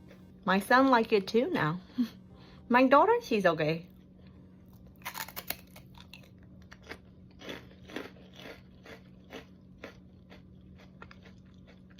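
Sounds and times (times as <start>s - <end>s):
biting into rice cracker: 4.7s - 11.9s
crunchy chewing: 4.7s - 11.9s.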